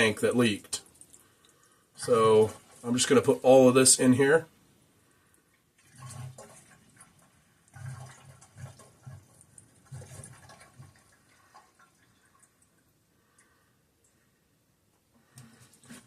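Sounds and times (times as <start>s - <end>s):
fuel pouring into tank: 5.8s - 13.8s.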